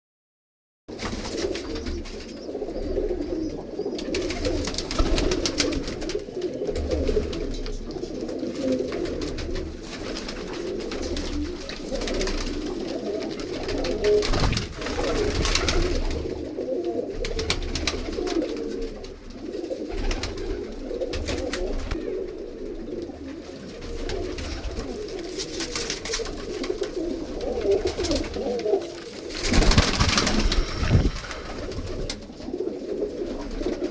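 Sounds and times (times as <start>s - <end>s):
pigeons cooing: 0.9s - 33.9s.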